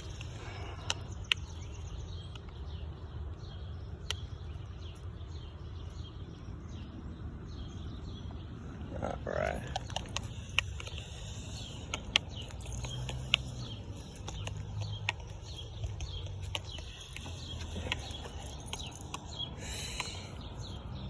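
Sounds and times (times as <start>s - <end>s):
sharp clicks: 0.0s - 2.8s, 9.6s - 20.2s
small birds chirping: 0.0s - 21.0s.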